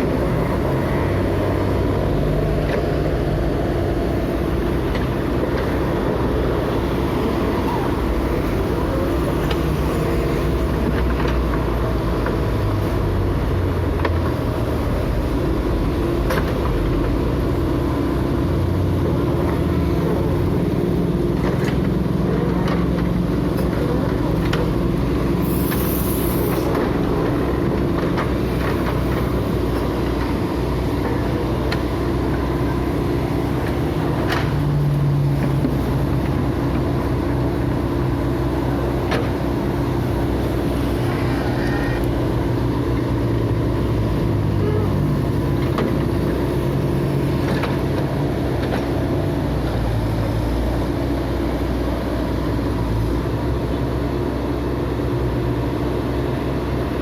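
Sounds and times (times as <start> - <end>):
heavy machine engine running: 0.0 - 57.0.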